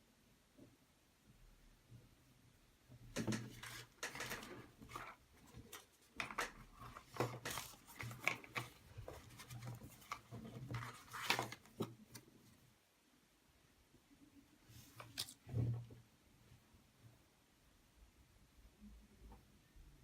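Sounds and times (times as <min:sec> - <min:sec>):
packaging rustling and clicking: 0:03.2 - 0:12.3.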